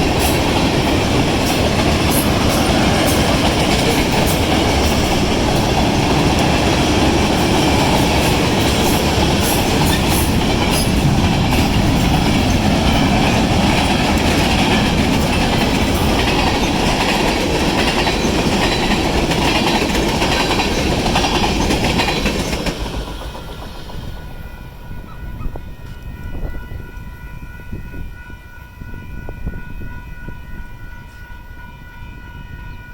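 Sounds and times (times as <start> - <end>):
crossing signal bells ringing: 0.0 - 22.8, 23.8 - 32.9
train wheels clattering: 0.0 - 26.2.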